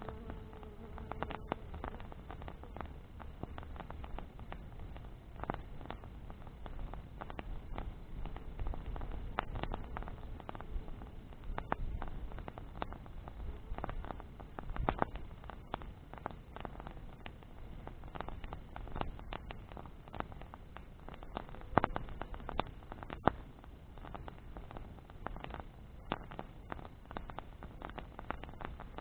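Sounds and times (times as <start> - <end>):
bonfire crackling and popping: 0.0 - 29.0
low rumble of fire: 0.0 - 29.0.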